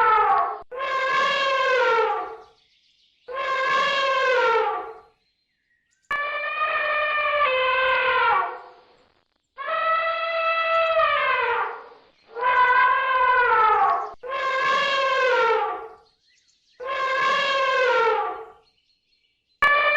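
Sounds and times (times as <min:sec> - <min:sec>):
long animal calls sliding down: 0:16.8 - 0:18.5.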